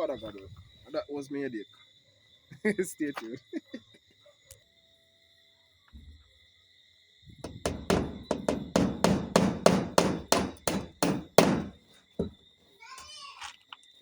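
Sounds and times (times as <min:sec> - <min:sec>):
hammer driving nails: 0:07.4 - 0:12.3.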